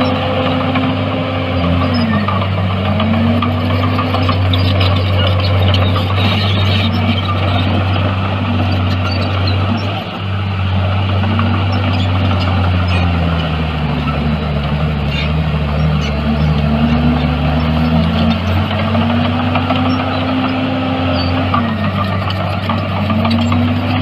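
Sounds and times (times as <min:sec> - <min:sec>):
bulldozer diesel engine under load: 0:00.0 - 0:24.0.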